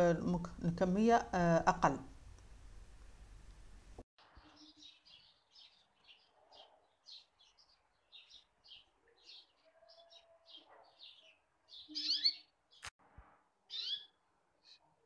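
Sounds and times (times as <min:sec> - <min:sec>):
small bird chirping: 0:04.3 - 0:12.9, 0:13.7 - 0:14.9.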